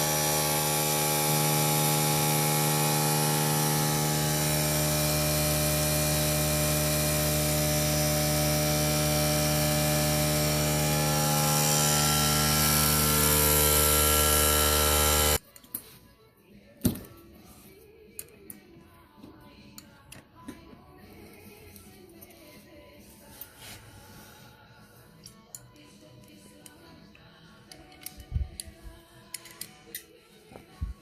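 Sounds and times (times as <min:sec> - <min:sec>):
small electric power tool running: 0:00.0 - 0:15.4.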